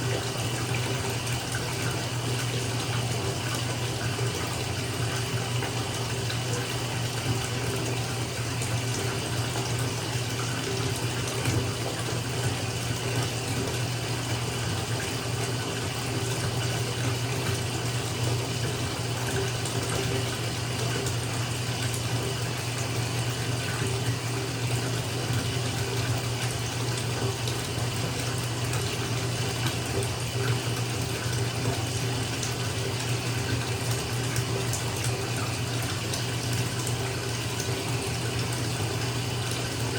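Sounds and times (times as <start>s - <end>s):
tap water pouring into bathtub: 0.0s - 39.9s.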